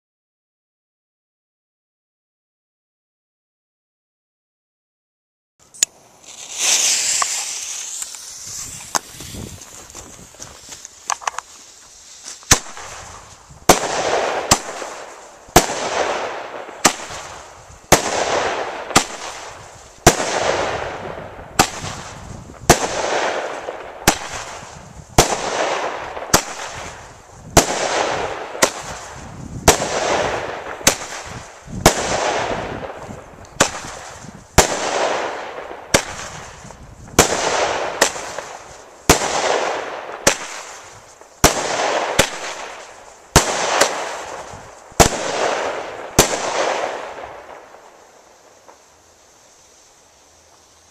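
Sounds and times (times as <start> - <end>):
firework rising with hissing rush: 5.9 - 50.9
firework loud bang: 6.2 - 9.7.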